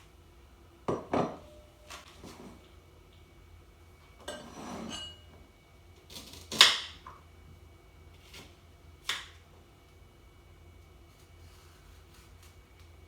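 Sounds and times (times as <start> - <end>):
utensils and dishes clattering: 4.2 - 5.3.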